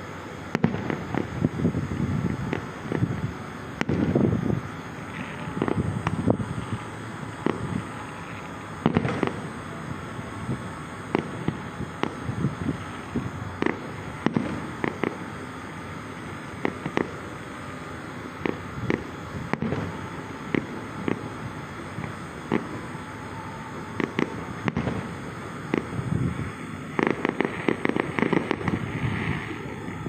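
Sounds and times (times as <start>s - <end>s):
steady rushing noise: 0.0s - 30.0s
sharp pops and bangs: 3.8s - 4.4s, 8.8s - 9.4s.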